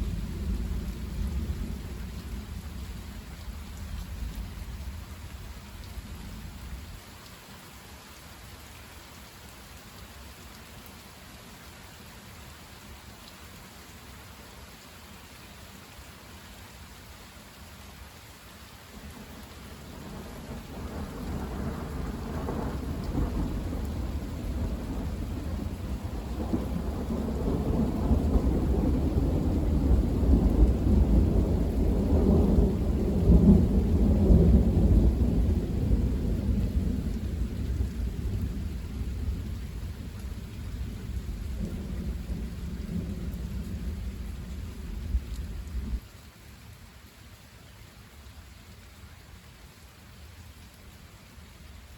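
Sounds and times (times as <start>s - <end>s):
rain falling: 0.0s - 51.9s
rolling thunder: 19.9s - 46.0s.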